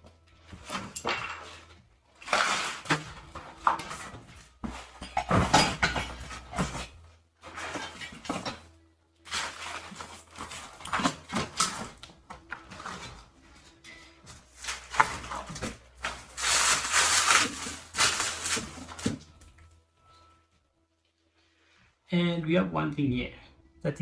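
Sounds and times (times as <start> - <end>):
packaging rustling: 9.2 - 19.6.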